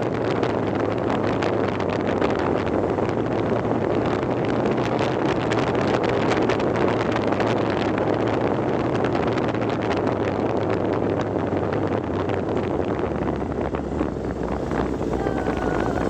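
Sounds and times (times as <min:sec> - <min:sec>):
vehicle engine and road noise: 0:00.0 - 0:16.0
wind buffeting microphone: 0:00.0 - 0:16.0.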